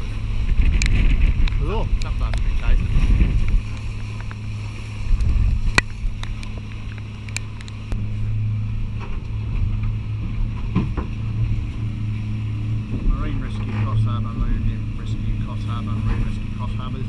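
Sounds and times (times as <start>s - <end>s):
boat engine drone: 0.0s - 17.0s
wind buffeting microphone: 0.0s - 17.0s
sharp clicks: 5.2s - 8.0s.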